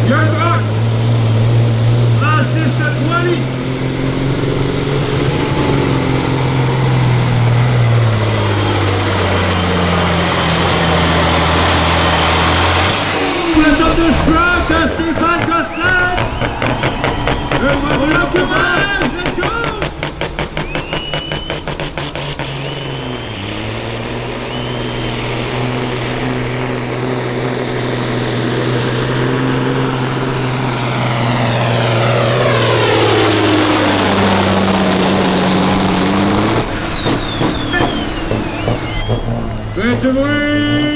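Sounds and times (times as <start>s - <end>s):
diesel truck engine under full load: 0.0s - 40.9s
turbo whistle: 7.1s - 14.9s, 15.6s - 40.1s.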